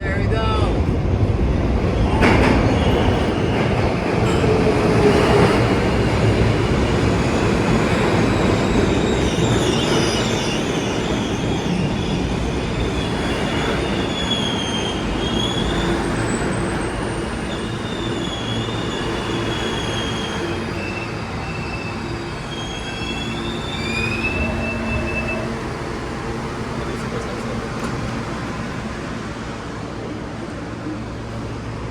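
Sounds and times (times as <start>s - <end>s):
subway train rumbling on rails: 0.0s - 31.9s
wheels squealing: 7.0s - 28.1s.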